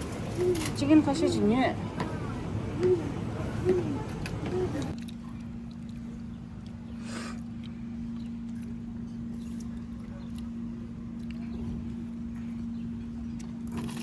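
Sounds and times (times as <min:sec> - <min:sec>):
boat engine rumbling: 0:00.0 - 0:05.0.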